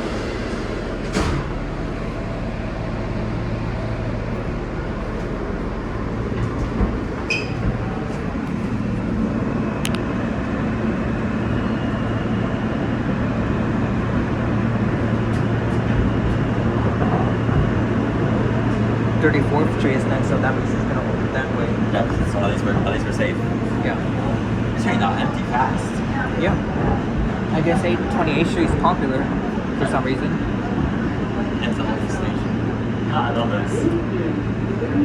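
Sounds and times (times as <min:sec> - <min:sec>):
subway train rumble: 0:00.0 - 0:35.0
wheel clicks and squeaks: 0:07.3 - 0:07.7.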